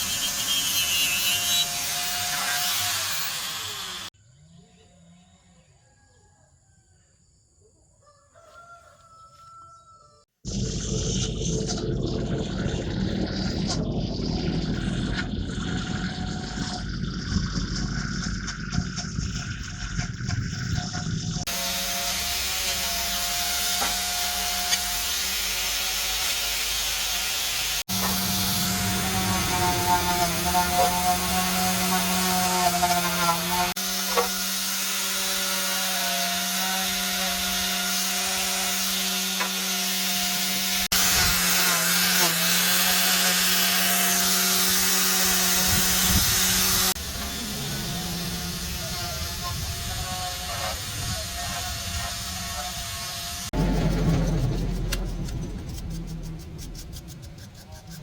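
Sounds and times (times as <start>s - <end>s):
electric power tool motors running: 0.0s - 4.1s, 21.4s - 53.6s.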